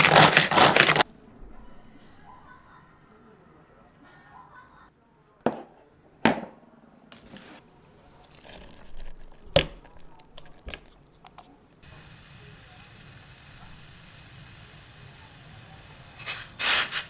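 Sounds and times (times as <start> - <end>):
vegetables rustling: 7.2 - 11.2.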